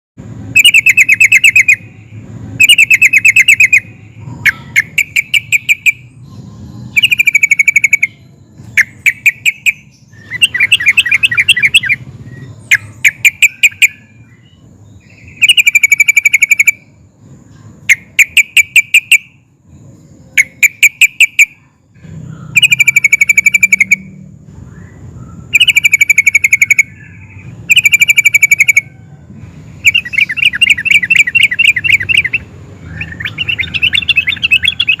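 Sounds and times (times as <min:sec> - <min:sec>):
bird singing bubbly notes: 0:02.6 - 0:17.1, 0:22.2 - 0:28.9, 0:29.8 - 0:35.0.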